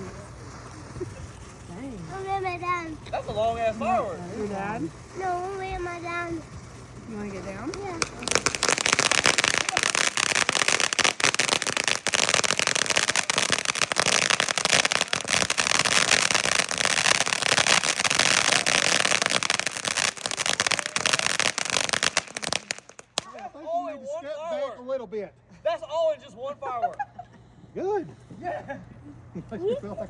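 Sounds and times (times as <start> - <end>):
firework crackling pops and bangs: 0.0 - 23.4.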